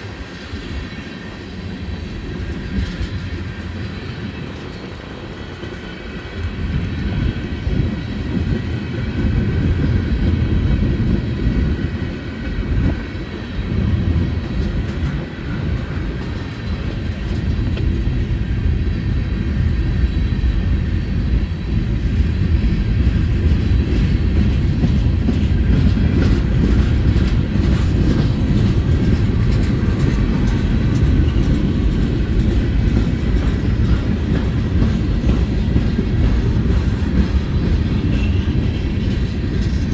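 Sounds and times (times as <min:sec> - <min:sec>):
train wheels rumbling on rail: 0:00.0 - 0:39.9
faint rail clicks: 0:23.5 - 0:39.9.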